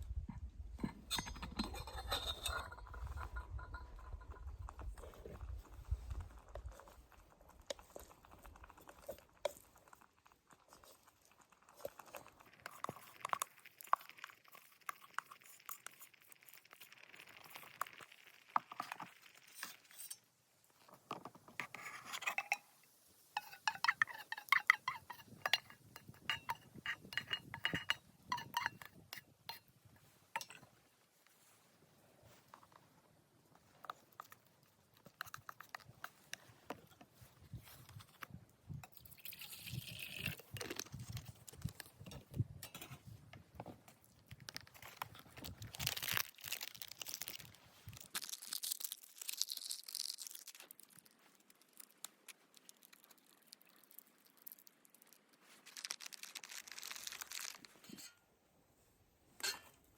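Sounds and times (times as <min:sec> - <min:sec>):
light metallic clinks and clicks: 0:00.8 - 0:06.9, 0:23.4 - 0:29.6, 0:30.4 - 0:30.7.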